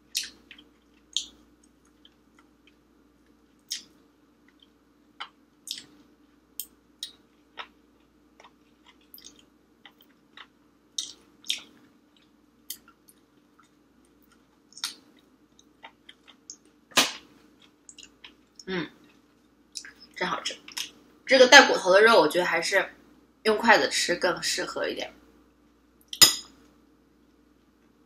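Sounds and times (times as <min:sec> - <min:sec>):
person chewing with mouth clicks: 0:00.1 - 0:06.0, 0:06.6 - 0:16.7, 0:17.6 - 0:20.1.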